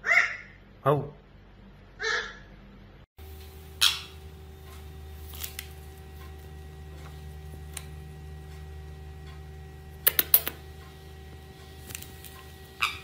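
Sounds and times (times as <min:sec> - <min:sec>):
steady low hum: 0:00.7 - 0:13.0.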